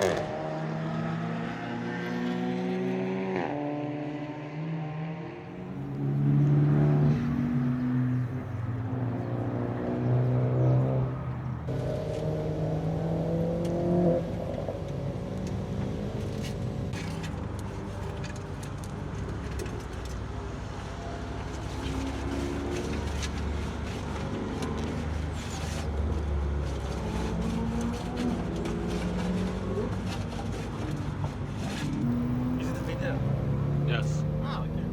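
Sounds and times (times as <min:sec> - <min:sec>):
car engine revving: 0:00.0 - 0:14.6, 0:26.7 - 0:34.9.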